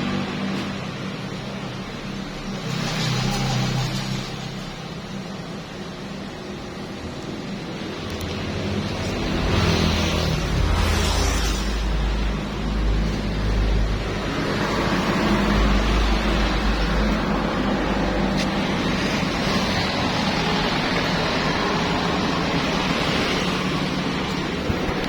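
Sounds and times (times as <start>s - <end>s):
pressure washer engine hum: 5.2s - 25.0s.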